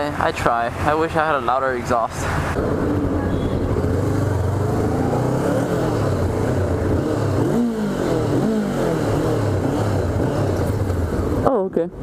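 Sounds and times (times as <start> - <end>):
motorcycle engine accelerating: 2.4 - 11.6.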